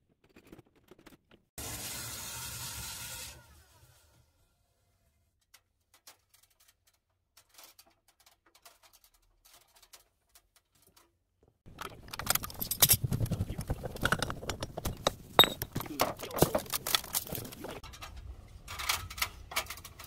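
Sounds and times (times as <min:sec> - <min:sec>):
small hard objects clattering: 0:11.7 - 0:18.0.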